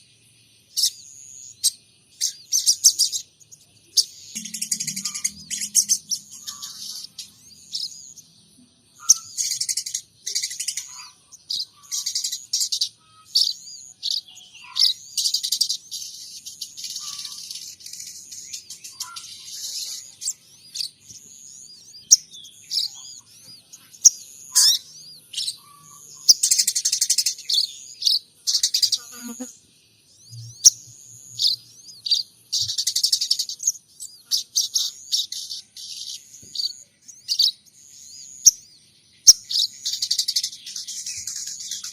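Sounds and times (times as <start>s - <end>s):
songbird chirping and trilling: 0.0s - 41.9s.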